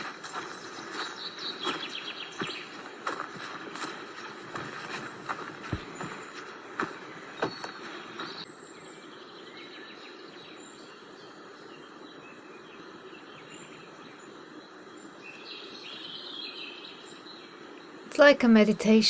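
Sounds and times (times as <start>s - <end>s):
steady background hiss: 6.3s - 19.0s
faint high bird chirps: 15.3s - 17.4s.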